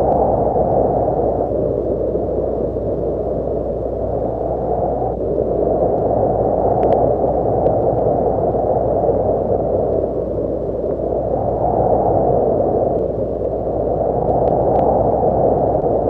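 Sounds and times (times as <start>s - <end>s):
dark muffled rumbling: 0.0s - 16.0s
faint clicks: 6.7s - 8.1s, 12.8s - 13.6s, 14.2s - 15.0s.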